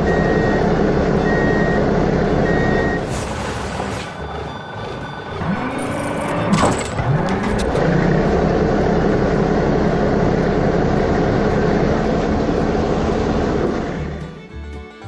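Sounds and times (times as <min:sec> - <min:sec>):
vehicle engine revving: 0:00.0 - 0:14.7
clicks: 0:05.3 - 0:14.9.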